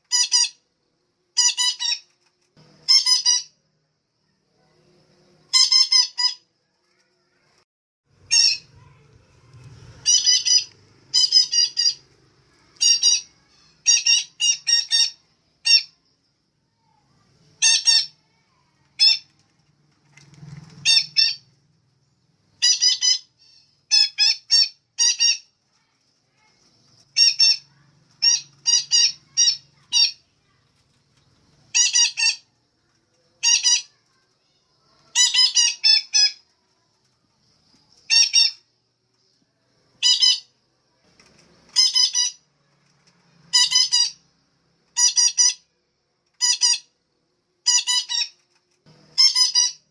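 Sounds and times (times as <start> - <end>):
parakeet squawking: 0.1 - 0.6, 1.4 - 2.0, 2.8 - 3.5, 5.5 - 6.4, 8.2 - 9.0, 10.0 - 16.0, 17.6 - 18.4, 20.8 - 21.5, 22.6 - 25.5, 27.1 - 30.2, 31.7 - 32.5, 33.4 - 34.0, 35.0 - 36.4, 38.1 - 38.6, 40.0 - 40.5, 41.7 - 42.4, 43.5 - 44.2, 45.0 - 45.6, 46.4 - 46.9, 47.6 - 48.4, 49.2 - 49.9.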